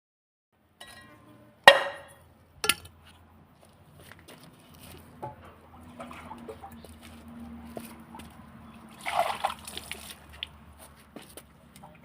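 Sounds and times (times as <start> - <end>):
kitchenware clinking: 0.8 - 2.9
kitchenware knocking: 1.7 - 2.2.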